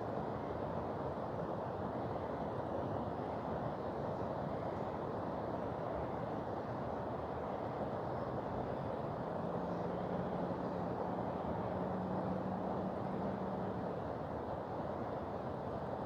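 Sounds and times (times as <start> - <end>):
river rushing: 0.2 - 16.0.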